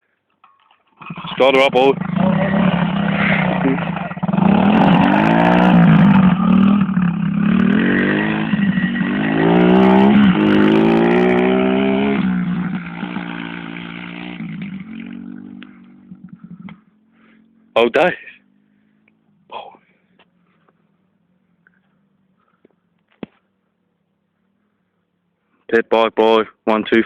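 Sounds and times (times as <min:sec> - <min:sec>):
motorbike engine revving: 0:01.0 - 0:17.7.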